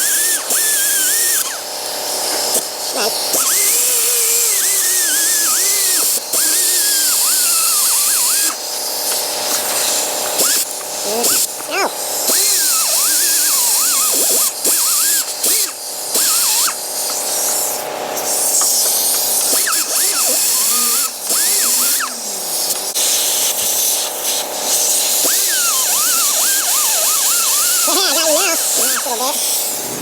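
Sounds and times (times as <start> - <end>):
air grinder whining: 0.0 - 30.0
person humming a tune: 11.0 - 11.9, 27.9 - 29.4.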